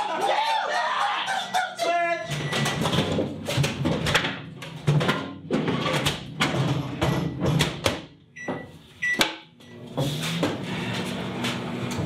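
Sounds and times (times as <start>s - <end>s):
knocks and clatter: 2.3s - 8.2s
microwave oven beep: 8.4s - 9.9s.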